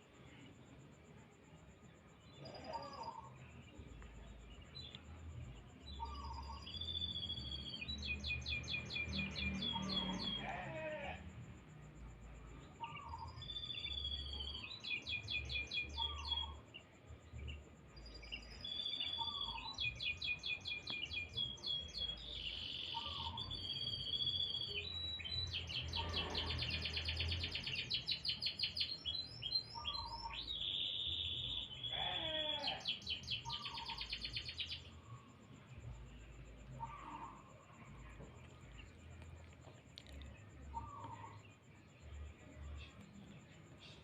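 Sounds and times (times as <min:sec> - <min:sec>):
canary singing: 0:05.9 - 0:11.1, 0:12.8 - 0:16.8, 0:18.0 - 0:34.9.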